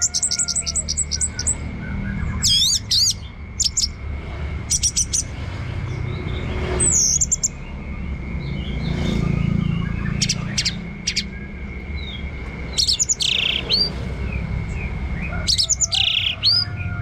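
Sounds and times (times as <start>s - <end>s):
thrush singing: 6.9s - 17.0s.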